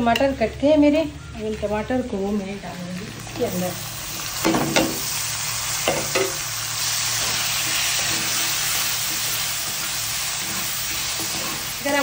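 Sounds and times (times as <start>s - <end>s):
tomatoes sizzling in hot oil: 0.0s - 12.0s
spatula knocking a pan: 4.4s - 5.0s, 5.8s - 6.4s.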